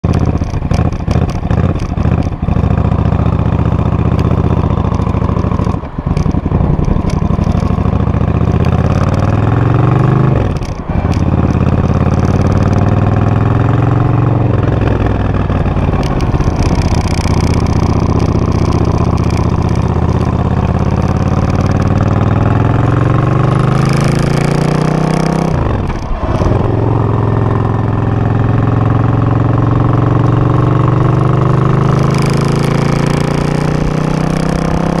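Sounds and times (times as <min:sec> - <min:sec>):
motorcycle engine idling and revving: 0:00.0 - 0:35.0.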